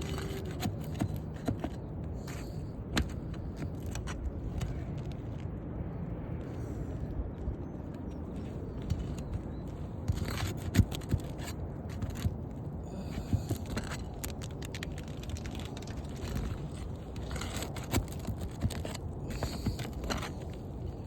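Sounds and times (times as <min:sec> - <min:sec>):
roof shingles pried and scraped: 0:00.0 - 0:05.3, 0:08.4 - 0:21.0
wind rumble on microphone: 0:00.0 - 0:21.0.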